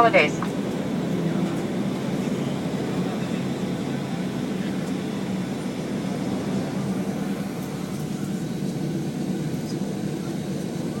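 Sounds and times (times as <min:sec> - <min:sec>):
airplane cabin hum: 0:00.0 - 0:11.0.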